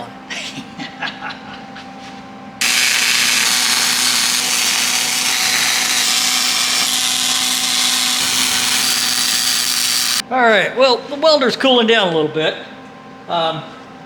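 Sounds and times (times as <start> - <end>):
arc welding crackling hiss: 2.6 - 10.2.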